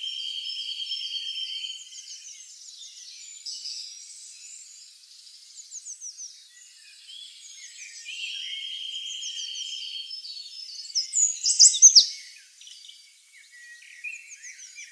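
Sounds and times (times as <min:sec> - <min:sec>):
songbirds chirping: 0:00.0 - 0:14.9.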